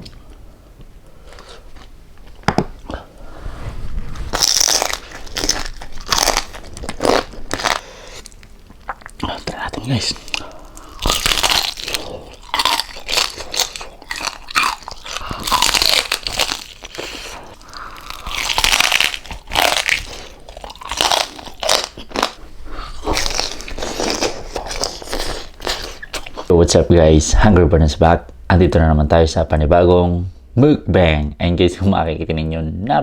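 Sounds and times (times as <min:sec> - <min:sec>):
crunching and chewing crispy food: 0:04.3 - 0:26.5.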